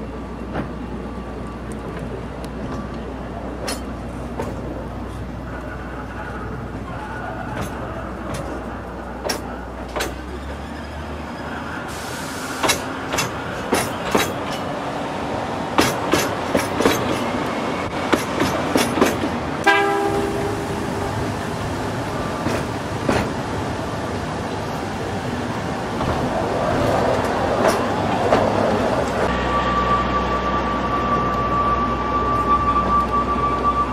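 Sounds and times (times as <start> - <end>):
train running noise: 0.0 - 33.9
wheels clicking over rail joints: 7.4 - 10.7, 12.6 - 14.8, 18.1 - 20.1, 26.0 - 29.3
train horn held note: 19.6 - 21.1.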